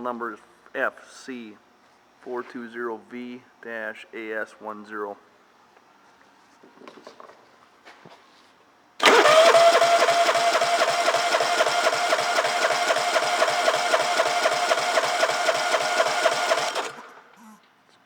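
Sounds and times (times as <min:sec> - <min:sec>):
engine cranking whine: 0:09.0 - 0:17.4.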